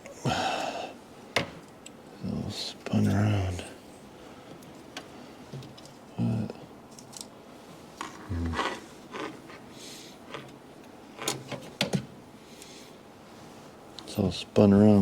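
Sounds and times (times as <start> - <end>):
low vocal sounds: 8.2 - 8.8.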